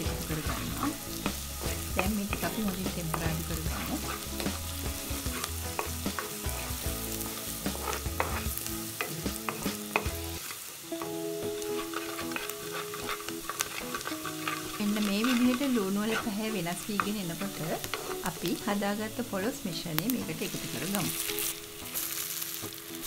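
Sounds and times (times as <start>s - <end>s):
onion and garlic sizzling in oil: 0.0s - 23.0s
wooden spoon scraping pot: 1.6s - 4.5s, 5.2s - 6.8s, 7.7s - 10.0s, 11.7s - 18.6s.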